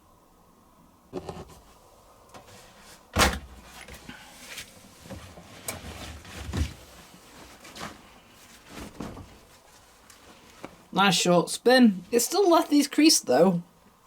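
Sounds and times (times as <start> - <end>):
clothes rustling and knocking: 1.1 - 10.9.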